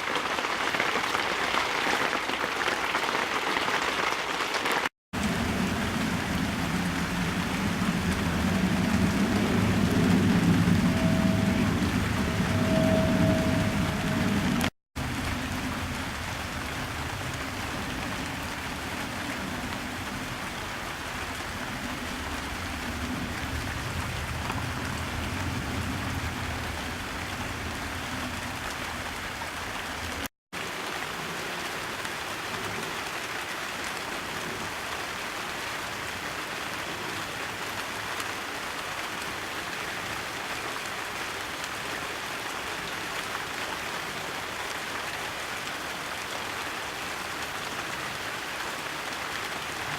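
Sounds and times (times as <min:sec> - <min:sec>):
steady rain hiss: 0:00.0 - 0:49.9
low rumble: 0:05.2 - 0:30.3.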